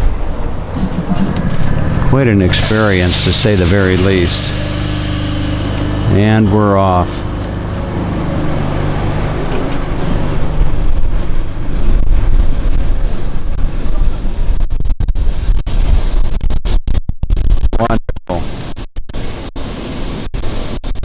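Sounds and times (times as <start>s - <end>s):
motor hum: 0.0s - 13.1s
tram low rumble: 0.0s - 14.6s.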